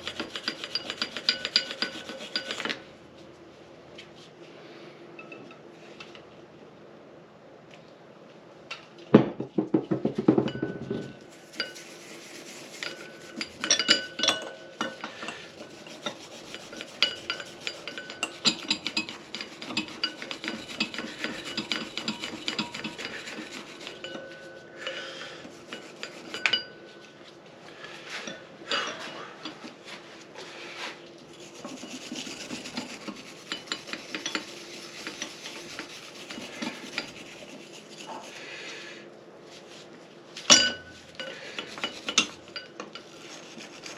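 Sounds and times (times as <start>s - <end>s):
scrubbing engine parts: 0.0s - 2.9s, 11.0s - 26.7s, 28.0s - 38.6s, 40.9s - 43.9s.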